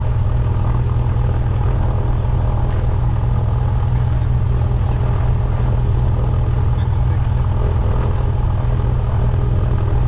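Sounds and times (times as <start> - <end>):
propeller plane engine droning: 0.0 - 10.0.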